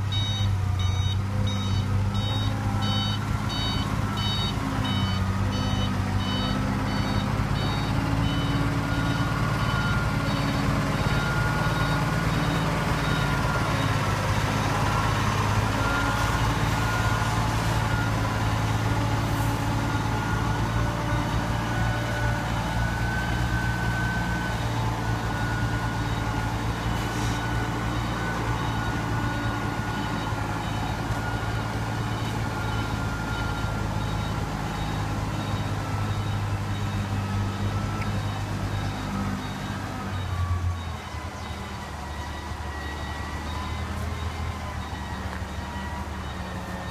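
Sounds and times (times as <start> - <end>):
diesel truck engine running: 0.0 - 46.9
backup beeper: 0.1 - 14.0.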